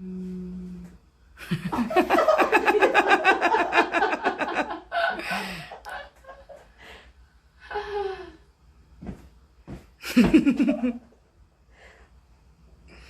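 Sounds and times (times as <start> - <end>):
person laughing: 10.0 - 11.1.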